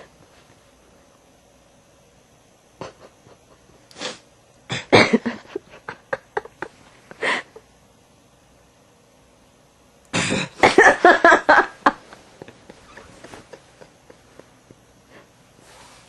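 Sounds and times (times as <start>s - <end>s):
person puffing and snorting: 3.9s - 5.2s.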